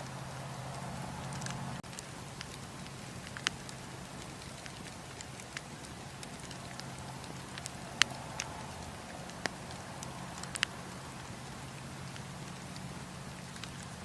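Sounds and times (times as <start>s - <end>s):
campfire hissing: 0.0s - 14.0s
fire crackling and popping: 0.0s - 14.0s.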